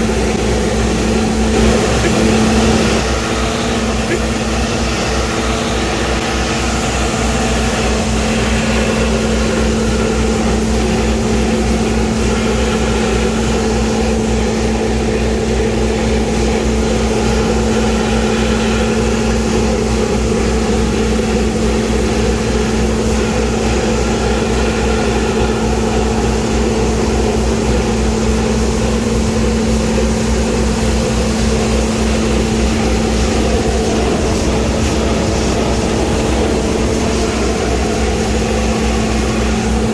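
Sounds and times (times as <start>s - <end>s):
truck engine droning: 0.0s - 39.9s.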